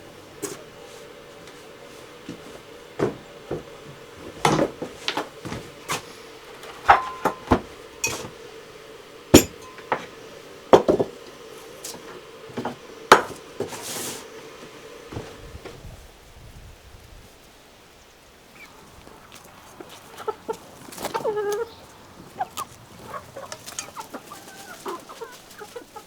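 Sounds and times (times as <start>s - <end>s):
faint steady hum: 0.0s - 26.0s
pots and dishes clinking: 6.7s - 8.4s, 9.4s - 10.2s.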